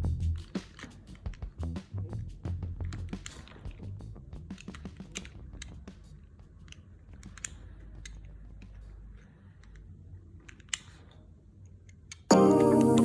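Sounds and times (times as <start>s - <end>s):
background music: 12.3s - 13.0s.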